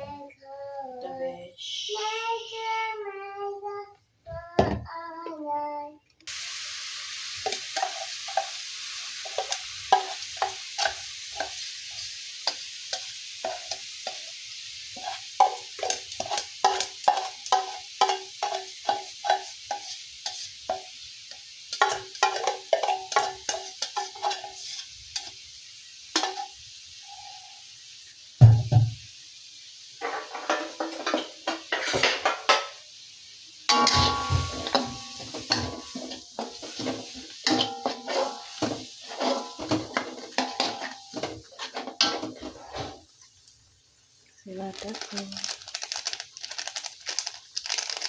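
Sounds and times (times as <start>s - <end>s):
person singing: 0.0s - 6.0s
food sizzling in a frying pan: 1.9s - 3.1s, 6.3s - 48.0s.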